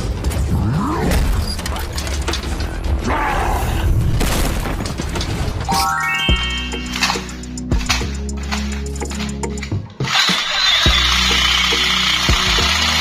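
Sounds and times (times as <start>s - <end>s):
background music with bass: 5.7s - 13.0s.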